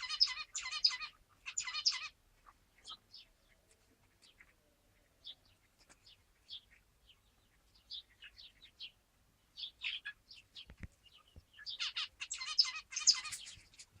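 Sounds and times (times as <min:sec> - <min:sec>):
finches chirping: 0:00.0 - 0:02.2, 0:05.2 - 0:13.9.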